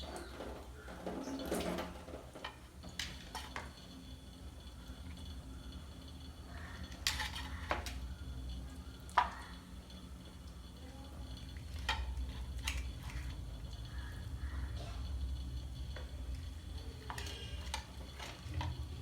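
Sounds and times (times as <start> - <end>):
metal pot and utensils clinking: 0.0 - 3.8, 6.9 - 8.1, 11.6 - 13.5, 14.7 - 19.0.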